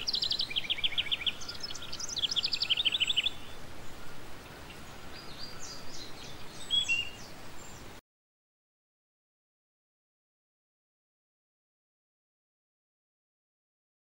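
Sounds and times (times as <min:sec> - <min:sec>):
songbird trilling: 0:00.0 - 0:07.9
soft bird chirps: 0:00.0 - 0:08.0
steady background hiss: 0:00.0 - 0:08.0.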